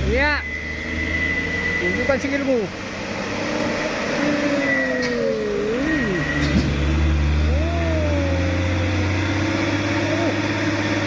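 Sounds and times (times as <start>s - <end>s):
heavy truck engine revving: 0.0s - 11.0s.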